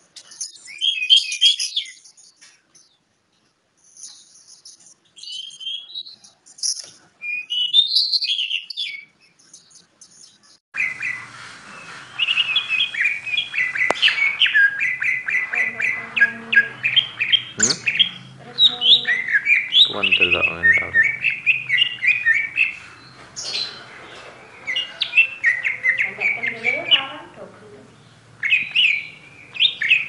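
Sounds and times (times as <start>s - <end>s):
bird singing chirps and whistles: 0.2s - 3.0s, 3.9s - 11.3s, 12.0s - 23.8s, 24.6s - 27.1s, 28.4s - 30.0s.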